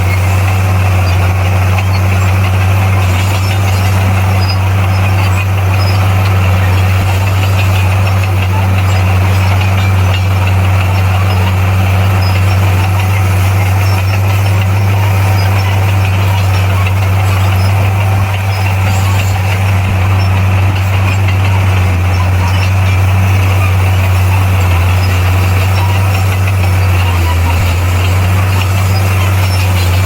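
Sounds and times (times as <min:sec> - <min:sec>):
bulldozer diesel engine humming: 0:00.0 - 0:30.0.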